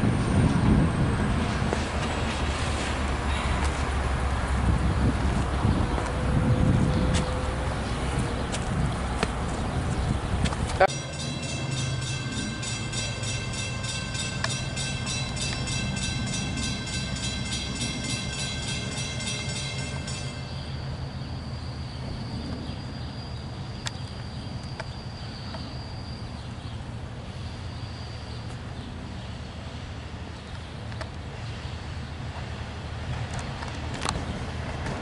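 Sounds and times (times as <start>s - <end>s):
train engine and rail rumble: 0.0s - 35.0s
high-pitched squeal: 10.8s - 23.6s
steady ringing tones: 10.9s - 23.6s.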